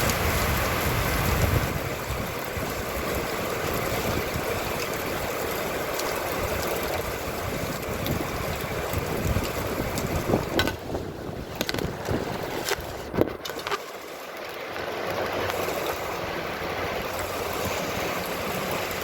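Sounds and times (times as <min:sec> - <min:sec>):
wind buffeting microphone: 0:00.0 - 0:13.7
steady rain: 0:00.0 - 0:19.0.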